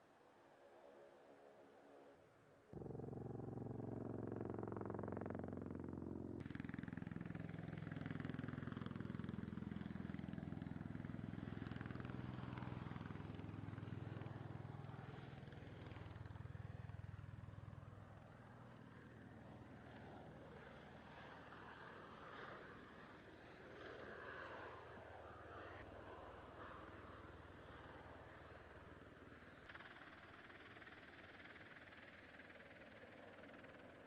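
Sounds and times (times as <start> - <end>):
aircraft rotors droning: 0.0 - 34.0.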